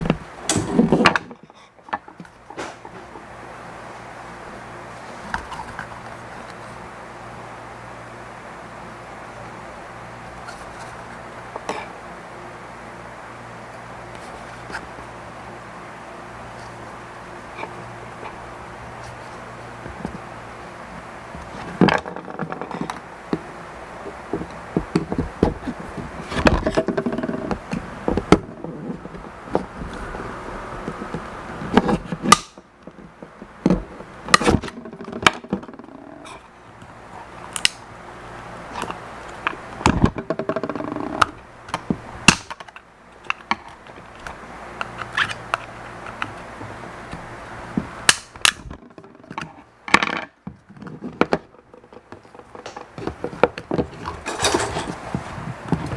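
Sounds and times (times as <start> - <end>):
tools scraping plastic: 0.0 - 3.2, 21.4 - 36.4, 38.7 - 49.6, 50.7 - 55.9
plastic parts clicking and tapping: 38.8 - 46.4.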